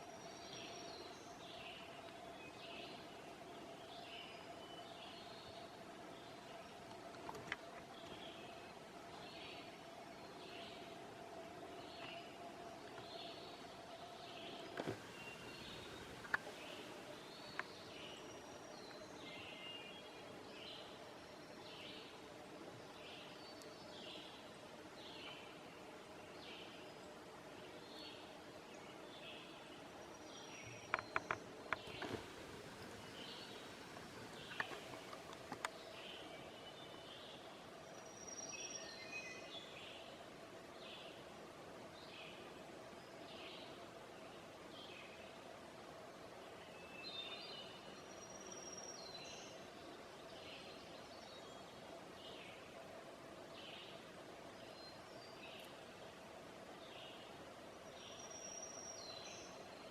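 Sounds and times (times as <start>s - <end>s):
low background hum: 0.0s - 38.7s
songbirds singing: 0.0s - 45.6s, 46.2s - 59.9s
outdoor background hiss: 0.0s - 59.9s
songbird falling call: 14.8s - 17.8s, 30.9s - 36.3s.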